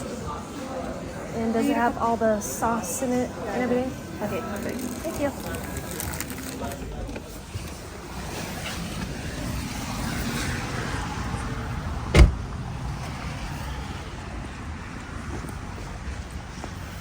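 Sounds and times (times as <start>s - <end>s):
car engine rumbling: 5.1s - 17.0s
loud sharp thump: 12.1s - 12.5s.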